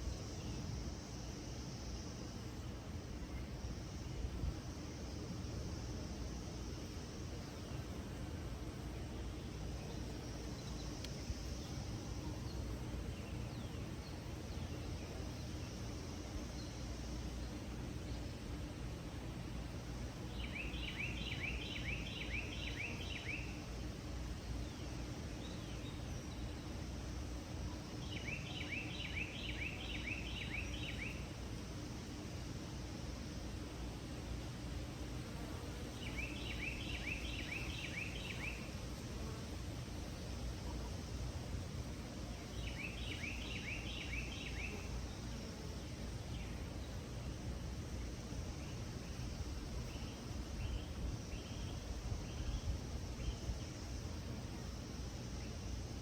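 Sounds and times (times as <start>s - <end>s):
outdoor background noise: 0.0s - 56.0s
small bird singing: 20.3s - 23.6s, 28.0s - 31.3s, 35.9s - 38.8s, 42.4s - 45.3s.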